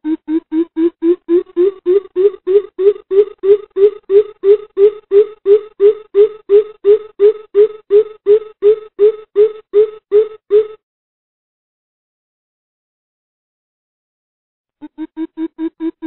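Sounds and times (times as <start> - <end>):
coucal deep hollow hoots: 0.0 - 10.8.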